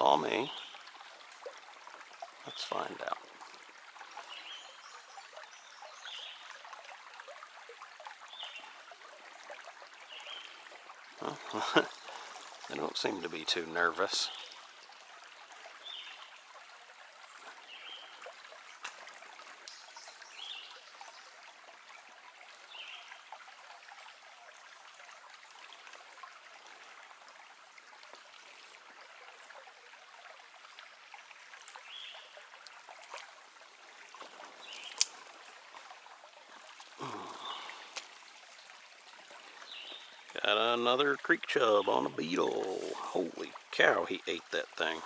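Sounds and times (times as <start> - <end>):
creek trickling over stones: 0.0 - 45.0.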